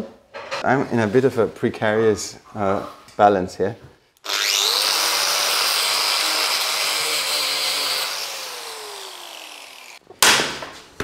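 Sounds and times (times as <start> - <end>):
power tool whining: 4.2 - 10.0.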